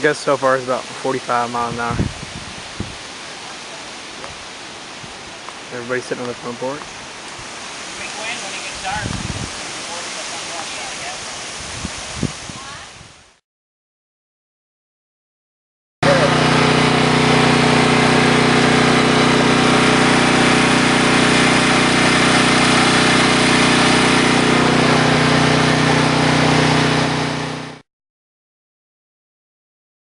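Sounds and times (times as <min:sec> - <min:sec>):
engine running steadily: 0:16.0 - 0:27.8.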